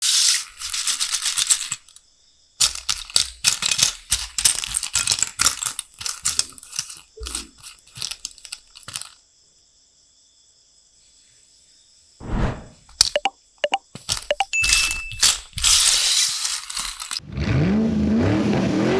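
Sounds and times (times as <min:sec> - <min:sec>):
plastic pieces clattering: 0:00.0 - 0:02.0, 0:02.6 - 0:09.2, 0:12.9 - 0:17.2.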